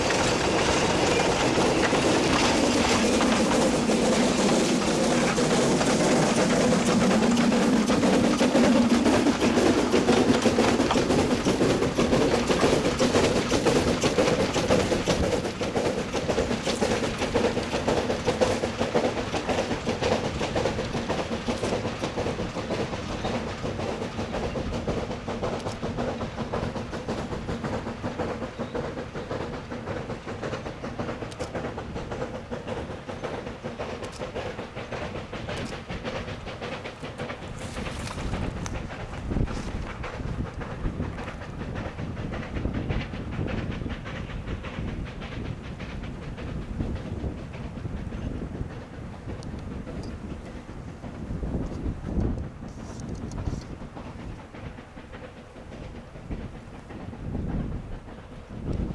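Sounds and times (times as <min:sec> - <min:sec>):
steady train hum: 0:00.0 - 0:58.9
train wheels clicking over rail joints: 0:00.0 - 0:58.9.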